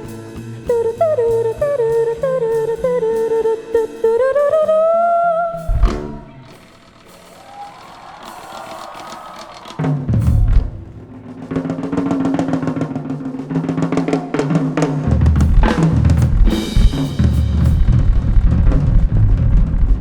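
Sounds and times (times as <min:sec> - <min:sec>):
drum kit busy pattern: 0:00.0 - 0:04.6, 0:05.4 - 0:20.0
sustained bass notes: 0:00.0 - 0:06.7, 0:15.1 - 0:20.0
rock band instrumental: 0:05.2 - 0:20.0
cymbal crash: 0:15.4 - 0:19.4.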